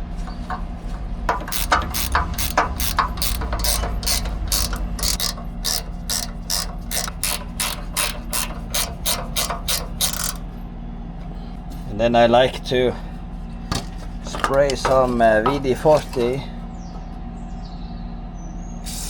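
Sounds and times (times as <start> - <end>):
steady low hum: 0.0 - 19.0
ratchet wrench clicking: 1.3 - 10.5.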